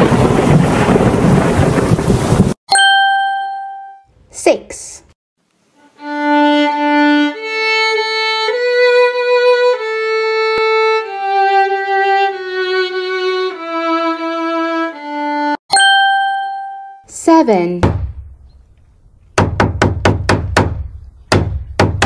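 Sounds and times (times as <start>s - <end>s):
solo violin slow melody: 5.7s - 15.6s.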